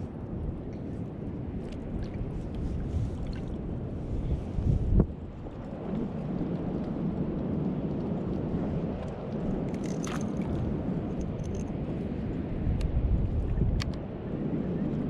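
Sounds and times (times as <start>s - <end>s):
water noise: 0.0s - 11.6s
wind buffeting microphone: 0.0s - 15.0s.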